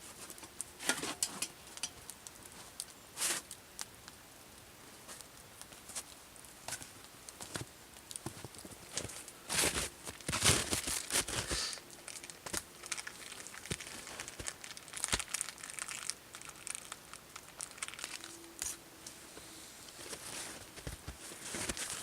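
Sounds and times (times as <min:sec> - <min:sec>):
crinkling and rustling: 0:00.0 - 0:22.0.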